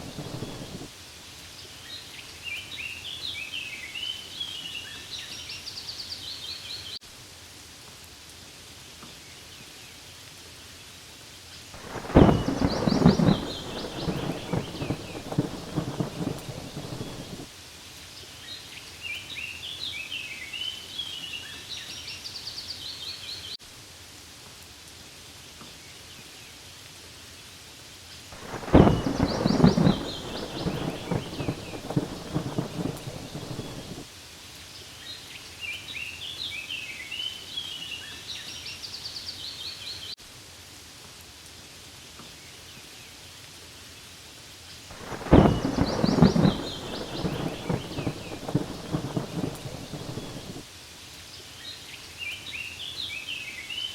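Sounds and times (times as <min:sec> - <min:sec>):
thunder rumbling: 0:00.0 - 0:00.9, 0:11.8 - 0:17.5, 0:28.4 - 0:34.1, 0:44.9 - 0:50.6
rain falling on leaves: 0:00.0 - 0:53.9.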